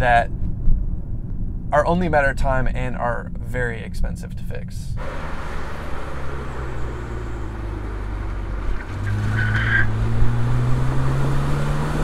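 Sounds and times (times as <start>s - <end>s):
road and wind noise: 0.0s - 12.0s
car engine accelerating: 5.0s - 12.0s
tyre squeal: 6.3s - 10.2s.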